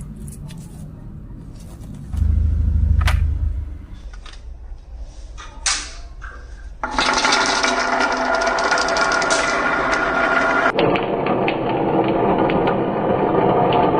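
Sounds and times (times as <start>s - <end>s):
marbles rolling down wooden run: 6.8s - 13.9s.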